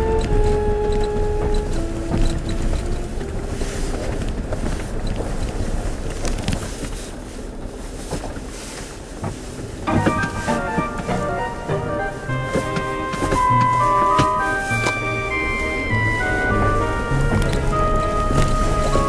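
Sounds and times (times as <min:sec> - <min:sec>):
music: 0:00.0 - 0:04.2, 0:09.9 - 0:19.0
vehicle road rumble: 0:00.0 - 0:19.0
knocks: 0:09.9 - 0:15.0.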